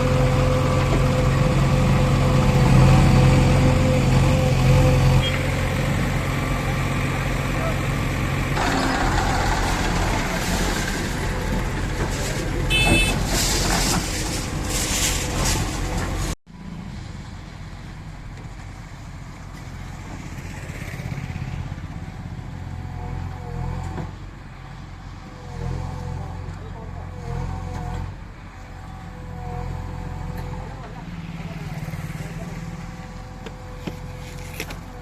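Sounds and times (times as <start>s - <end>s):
heavy machine engine running: 0.0s - 16.4s.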